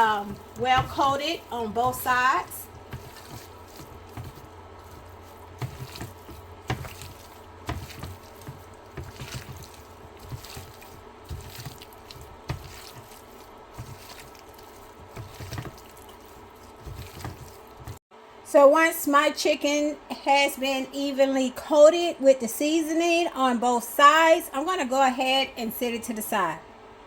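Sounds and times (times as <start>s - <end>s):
wet squelches of raw chicken: 0.0s - 18.0s.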